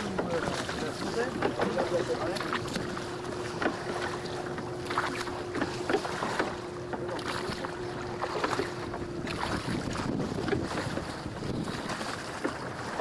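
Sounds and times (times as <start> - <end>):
water splashing against boat hull: 0.0 - 13.0
wind buffeting microphone: 0.0 - 13.0.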